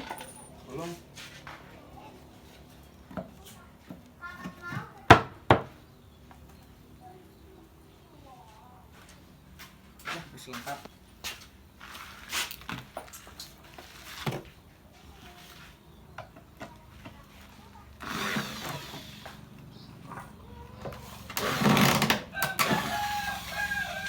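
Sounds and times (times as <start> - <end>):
noisy rasping bursts: 18.0 - 24.0
rooster crowing: 22.2 - 24.0.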